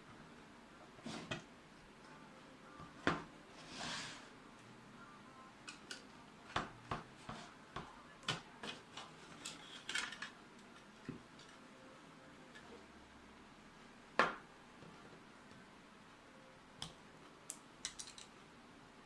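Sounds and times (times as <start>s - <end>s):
metal parts clicking and clinking: 17.8s - 18.4s.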